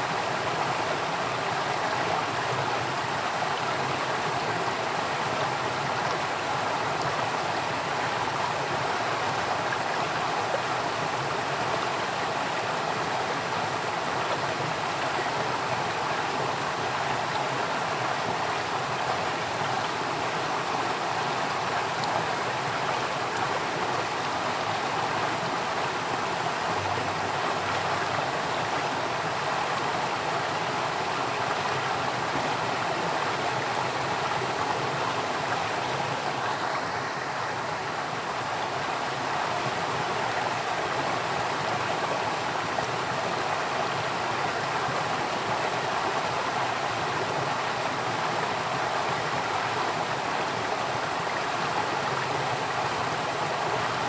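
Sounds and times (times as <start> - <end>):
flowing water: 0.0 - 54.0.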